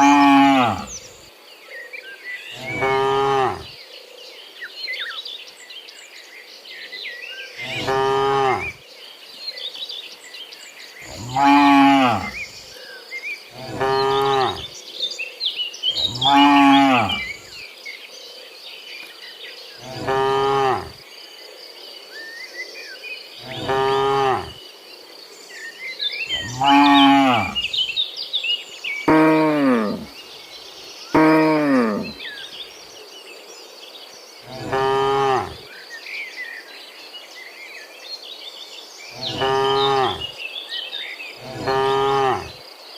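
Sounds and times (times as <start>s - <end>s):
cattle mooing: 0.0s - 1.1s, 2.6s - 3.7s, 7.6s - 8.8s, 11.1s - 12.5s, 13.6s - 14.7s, 16.0s - 17.4s, 19.8s - 20.9s, 23.4s - 24.6s, 26.3s - 27.8s, 29.1s - 30.1s, 31.2s - 32.2s, 34.5s - 35.6s, 41.4s - 42.5s.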